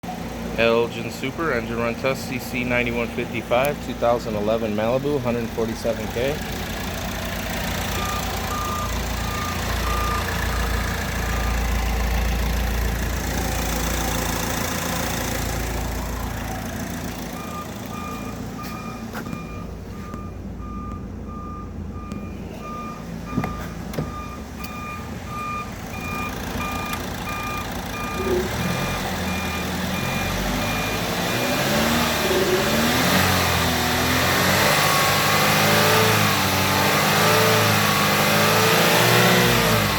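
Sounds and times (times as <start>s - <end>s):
car engine idling and revving: 0.0s - 39.9s
dashboard warning chime beeping: 7.8s - 11.8s, 17.2s - 33.6s.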